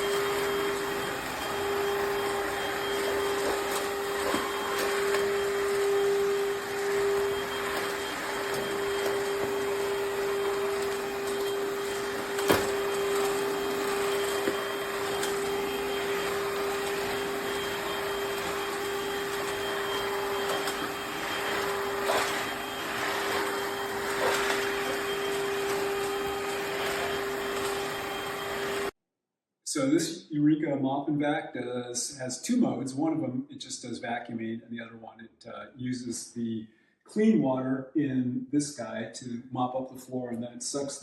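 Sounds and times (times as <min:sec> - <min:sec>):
vacuum motor hum and suction: 0:00.0 - 0:28.9.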